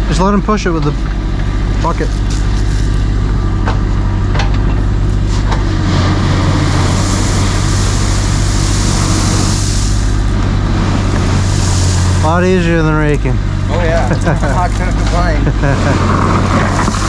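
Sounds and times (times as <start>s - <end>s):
excavator diesel engine running: 0.0s - 17.0s
hiss: 5.2s - 12.7s, 16.0s - 17.0s.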